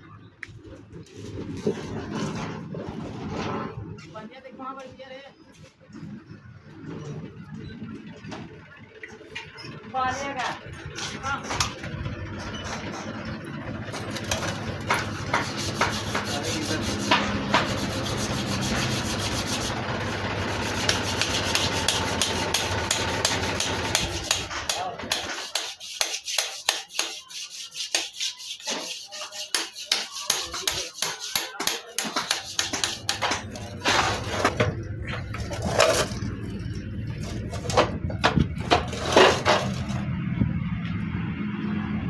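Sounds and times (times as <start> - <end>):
rubbing or scraping strokes: 14.2 - 34.6, 38.6 - 40.0.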